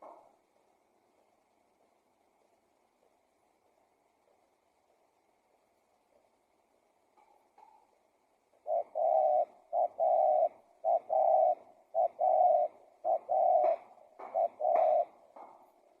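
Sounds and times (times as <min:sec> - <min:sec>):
dove cooing: 0:08.5 - 0:16.0.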